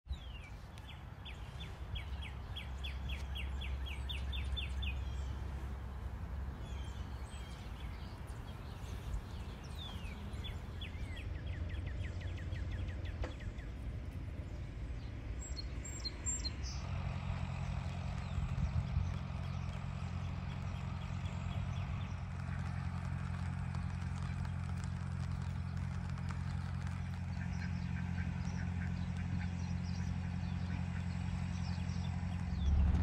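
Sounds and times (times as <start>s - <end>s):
songbird trilling: 0.1s - 13.7s
steady low rumble: 0.1s - 33.0s.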